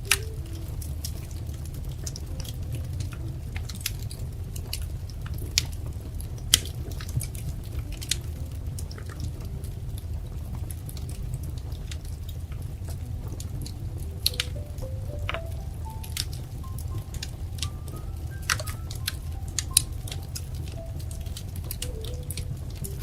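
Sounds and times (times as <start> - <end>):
wood fire crackling: 0.0 - 23.0
fire pops and snaps: 0.1 - 16.4.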